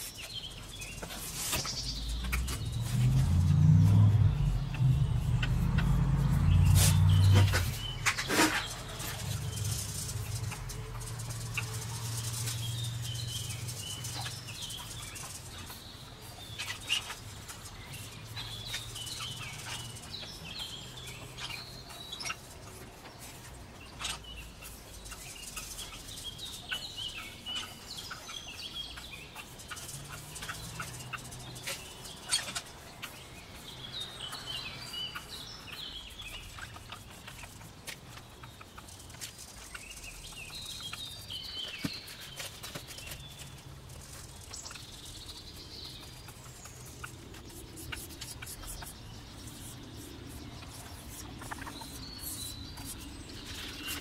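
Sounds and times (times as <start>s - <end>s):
small birds chirping: 0.0s - 54.0s
low hum: 1.8s - 14.4s.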